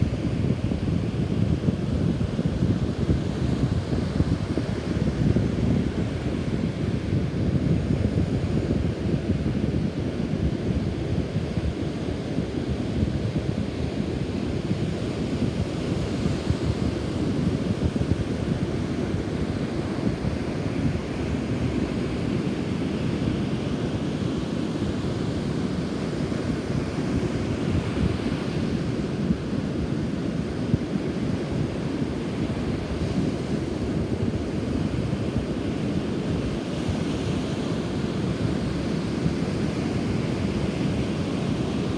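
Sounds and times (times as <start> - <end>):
wind buffeting microphone: 0.0 - 22.7.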